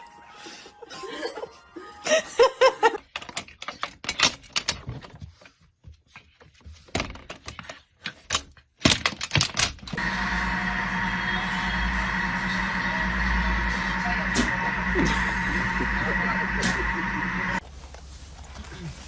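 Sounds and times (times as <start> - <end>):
steady hum: 10.0 - 17.6.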